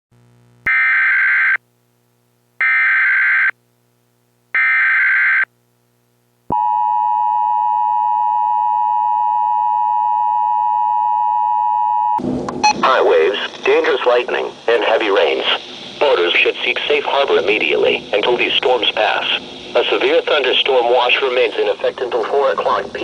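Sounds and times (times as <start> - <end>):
steady warning alarm tone: 2.6 - 3.5, 4.6 - 5.5.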